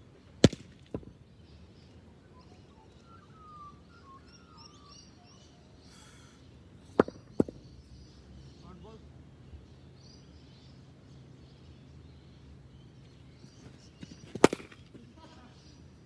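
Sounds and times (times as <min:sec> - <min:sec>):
birds chirping: 0:00.0 - 0:16.0
sharp knocks: 0:06.9 - 0:07.6.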